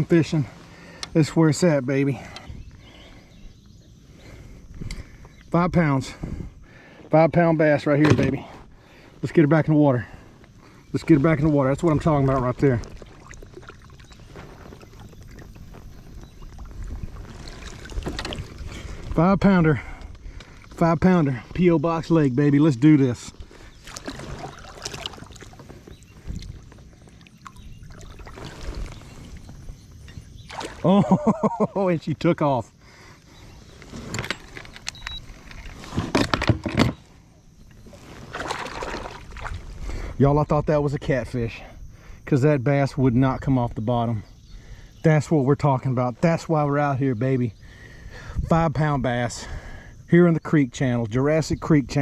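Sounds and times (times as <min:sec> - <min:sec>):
handling knocks on kayak: 0:08.0 - 0:08.5.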